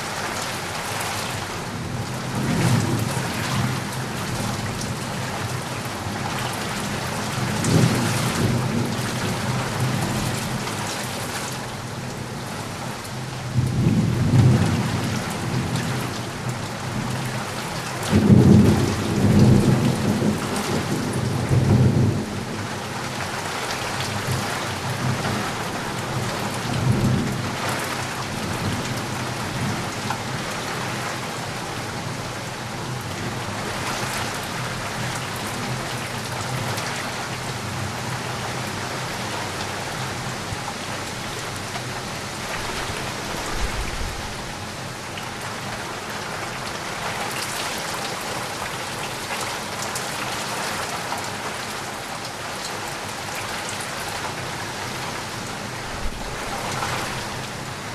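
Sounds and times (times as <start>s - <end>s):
steady rain falling: 0.0s - 57.9s
distant thunder rumbles: 42.4s - 44.6s.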